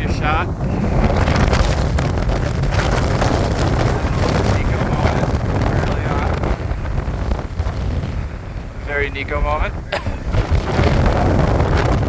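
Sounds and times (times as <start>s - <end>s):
gusty wind buffeting microphone: 0.0s - 12.0s.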